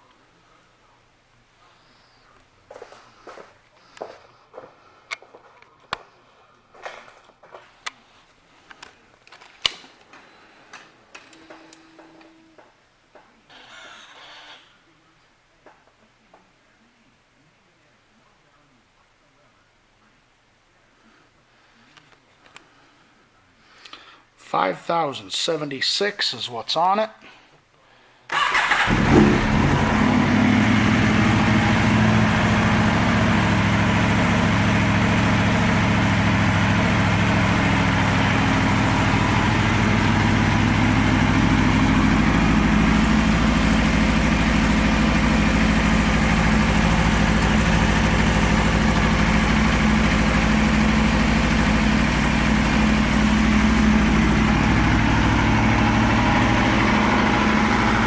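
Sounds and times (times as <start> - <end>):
motorcycle engine starting and idling: 28.3 - 58.0.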